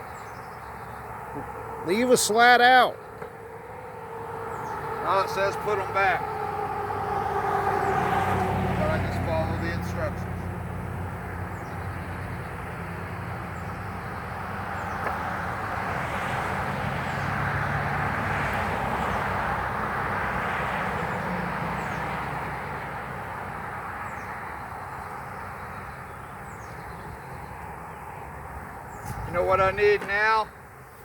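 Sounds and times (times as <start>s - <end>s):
vehicle passing rushing noise: 0.7s - 30.2s.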